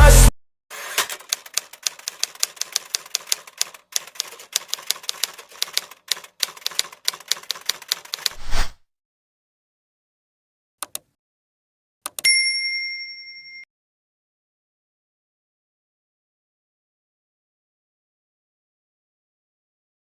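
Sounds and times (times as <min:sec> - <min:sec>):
typewriter keys clacking: 0:00.9 - 0:08.4.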